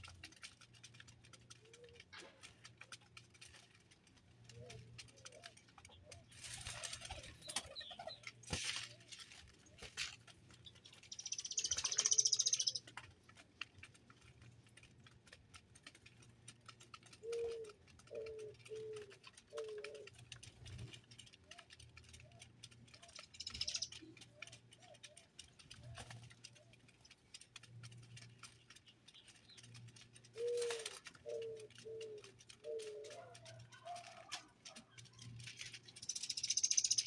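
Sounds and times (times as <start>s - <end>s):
bird wingbeats: 0.0s - 37.0s
small clicks: 0.0s - 37.0s
high-pitched bird call: 11.2s - 12.8s, 36.0s - 37.0s.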